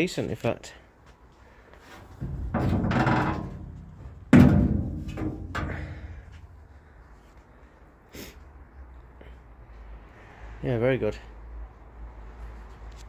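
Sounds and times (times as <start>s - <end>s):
metal panel scraping: 2.0s - 6.6s
ringing metal thunk: 2.2s - 6.4s
small metal knock: 2.2s - 6.4s.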